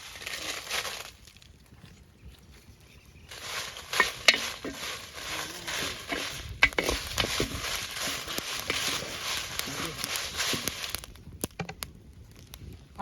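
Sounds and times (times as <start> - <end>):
chillies sizzling in a pot: 0.0 - 1.4, 3.2 - 11.7
ladle scraping a pot: 3.4 - 11.0.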